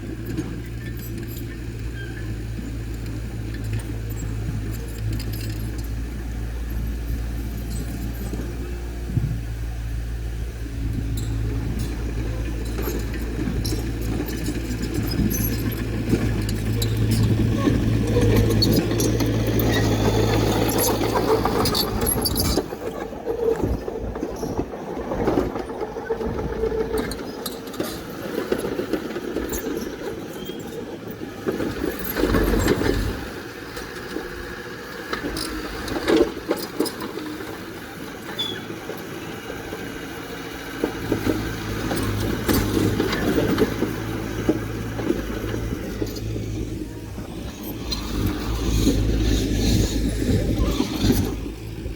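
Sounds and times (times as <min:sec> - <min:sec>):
diesel engine droning: 0:00.0 - 0:51.9
knocks and clatter: 0:35.0 - 0:51.9.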